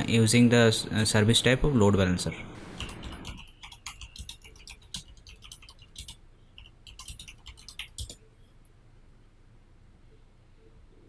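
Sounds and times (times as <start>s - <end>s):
typing on computer keyboard: 2.8s - 8.2s.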